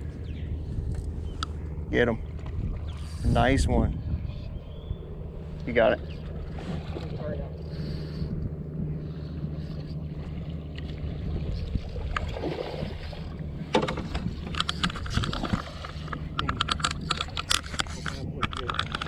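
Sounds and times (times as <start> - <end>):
boat motor humming: 0.0 - 19.0
sharp clicks and knocks: 13.7 - 19.0.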